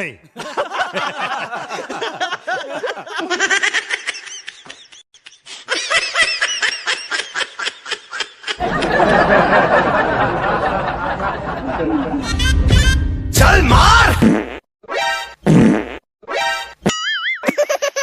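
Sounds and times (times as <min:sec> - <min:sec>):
person laughing hard: 0:11.6 - 0:13.0.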